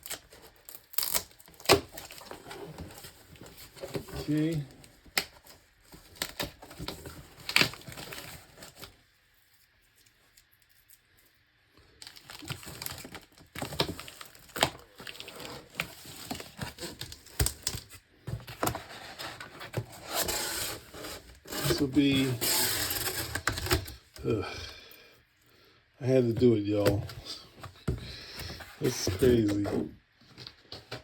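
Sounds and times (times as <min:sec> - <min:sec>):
packing material crinkling and tearing: 0:00.0 - 0:11.1, 0:11.9 - 0:24.4.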